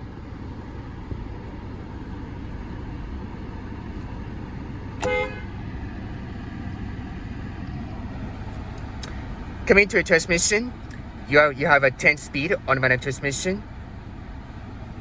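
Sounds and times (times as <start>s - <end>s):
car engine idling: 0.0s - 15.0s
car horn toot: 5.0s - 5.6s.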